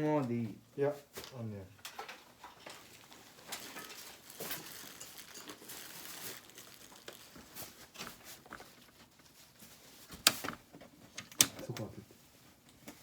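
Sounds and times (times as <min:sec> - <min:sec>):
packaging rustling: 0:02.0 - 0:10.6.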